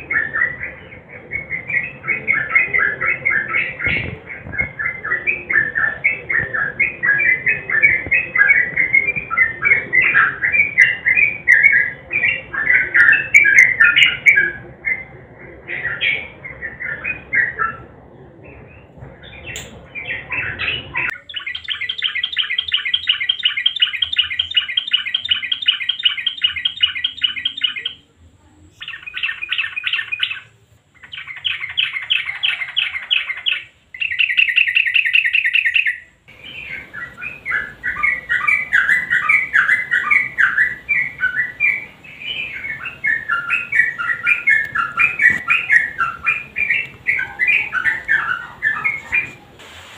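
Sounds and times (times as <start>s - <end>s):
bird chattering: 0.0s - 18.0s, 19.2s - 28.1s, 28.7s - 49.6s
bird chirping and rattling: 19.2s - 28.0s.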